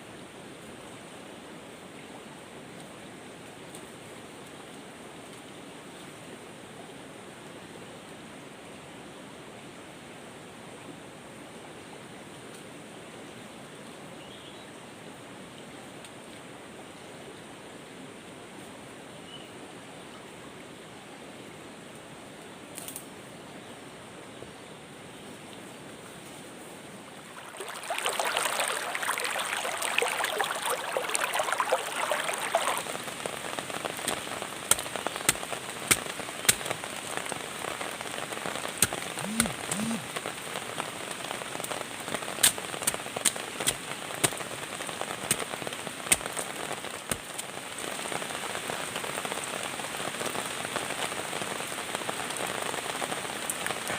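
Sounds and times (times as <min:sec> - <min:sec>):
rain pattering in forest: 0:00.0 - 0:53.9
single raindrops ticking: 0:27.2 - 0:40.3.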